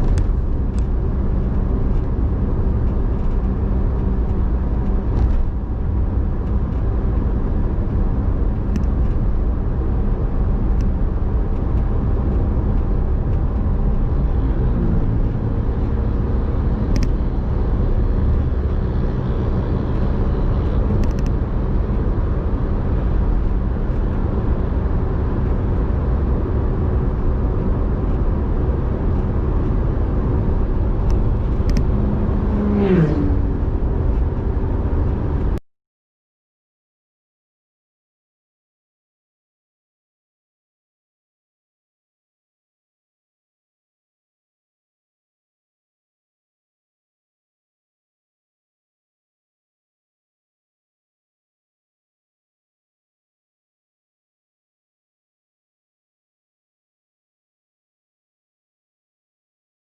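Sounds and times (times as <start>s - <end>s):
car engine rumble: 0.0s - 35.6s
road noise: 0.0s - 35.6s.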